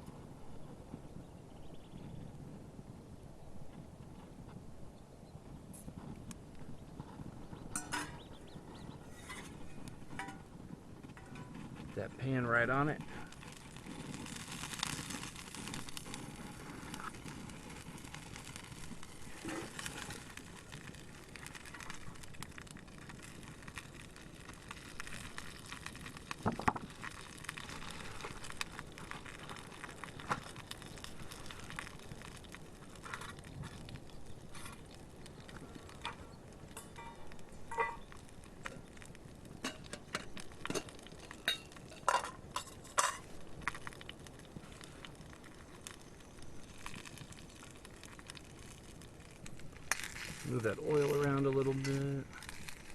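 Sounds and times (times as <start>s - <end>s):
campfire crackling and popping: 0.0s - 52.9s
steady hiss: 44.5s - 52.9s.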